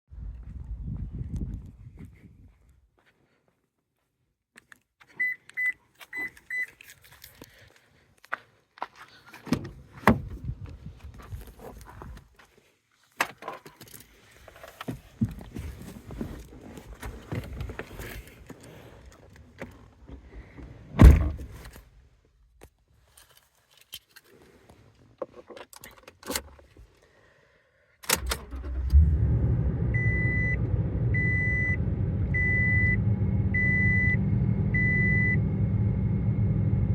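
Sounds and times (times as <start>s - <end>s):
loud thump: 21.0s - 21.6s
car engine idling: 28.4s - 36.9s.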